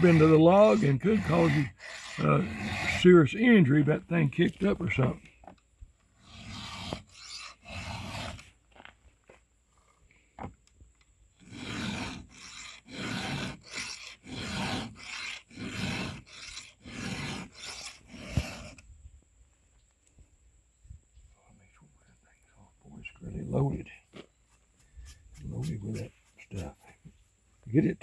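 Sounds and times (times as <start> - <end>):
file rasping on chainsaw chain: 0.0 - 5.2, 6.2 - 8.5, 11.4 - 18.8.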